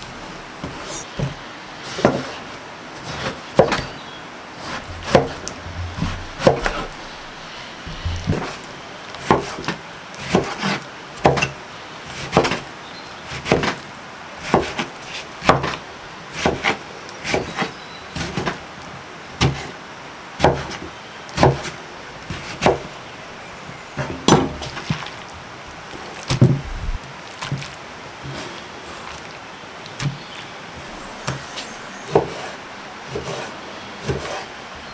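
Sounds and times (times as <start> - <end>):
chopping blows on wood: 3.6 - 4.0, 4.7 - 11.6, 20.4 - 20.8, 21.4 - 22.9, 26.3 - 27.7.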